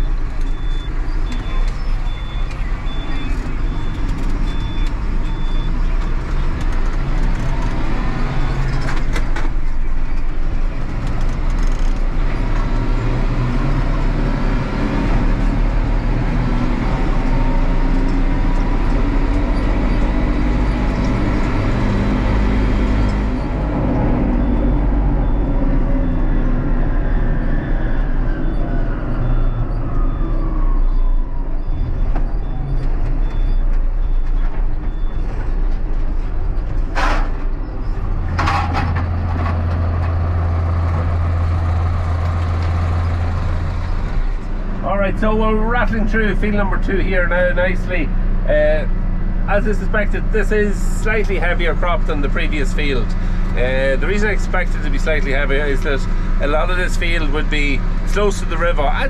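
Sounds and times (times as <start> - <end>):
tractor engine running: 33.1 - 59.0.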